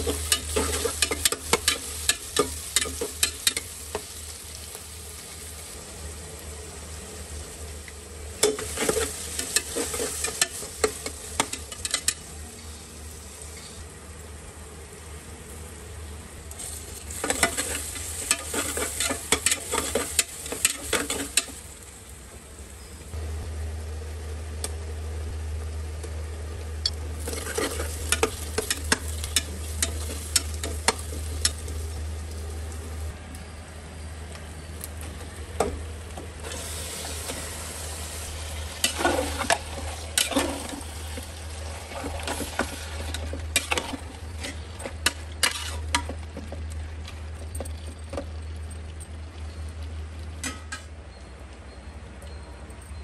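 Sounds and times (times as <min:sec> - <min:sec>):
meat sizzling: 0:00.0 - 0:13.8, 0:16.5 - 0:22.8, 0:26.9 - 0:33.2, 0:36.4 - 0:46.4
onions and spices frying in oil: 0:00.0 - 0:51.7
steady low hum: 0:00.0 - 0:53.0
metal spoon scraping a pot: 0:42.3 - 0:46.1.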